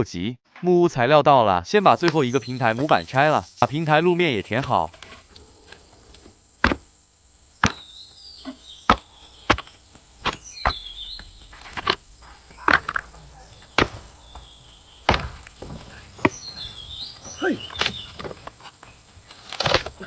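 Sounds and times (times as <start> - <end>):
birds chirping faintly: 1.8 - 20.0
wooden boards knocked: 12.6 - 17.2.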